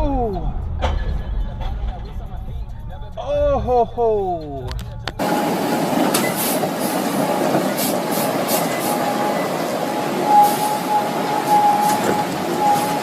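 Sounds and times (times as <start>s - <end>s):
moving vehicle rolling noise: 4.5s - 13.0s
thin high squeal: 6.2s - 13.0s.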